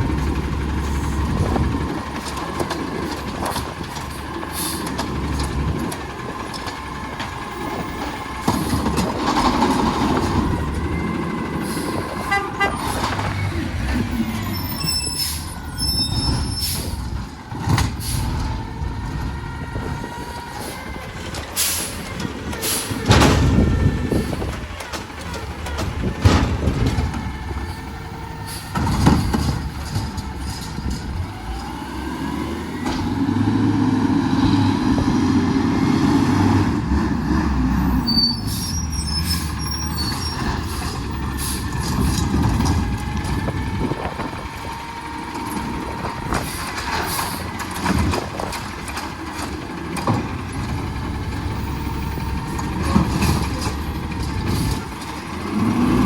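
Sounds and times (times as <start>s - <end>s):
diesel engine running: 0.0s - 56.0s
metal clanks and knocks: 21.1s - 27.8s.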